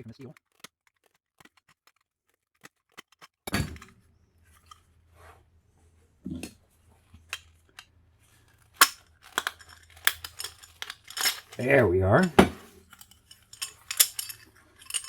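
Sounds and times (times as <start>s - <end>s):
metal parts clinking and knocking: 8.5s - 15.0s.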